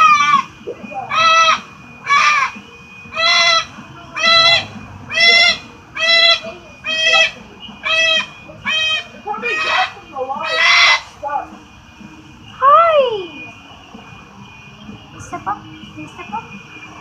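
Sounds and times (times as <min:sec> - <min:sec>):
parrot squawking: 0:00.0 - 0:11.2.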